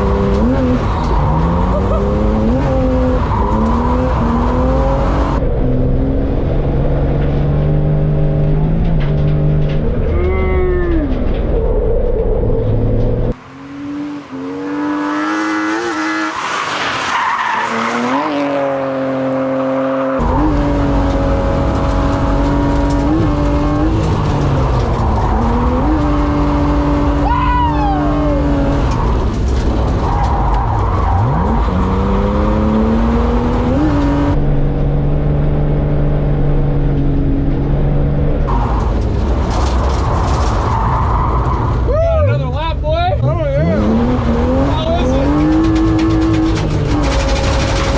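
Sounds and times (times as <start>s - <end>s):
car engine revving hard: 0.0s - 5.4s, 17.3s - 27.4s, 31.0s - 34.4s, 43.6s - 47.9s
tyres skidding and squealing: 0.0s - 5.4s, 9.1s - 34.4s, 38.5s - 47.9s.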